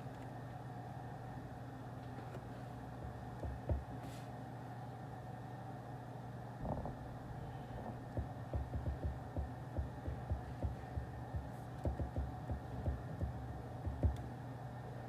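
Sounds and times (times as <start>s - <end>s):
room hum: 0.0s - 15.0s
tapping on a desk: 8.2s - 14.2s.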